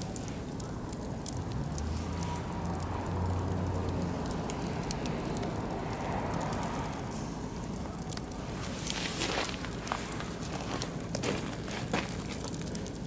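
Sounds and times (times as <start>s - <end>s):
fire crackling and popping: 0.0s - 13.0s
fire hissing: 0.0s - 13.0s.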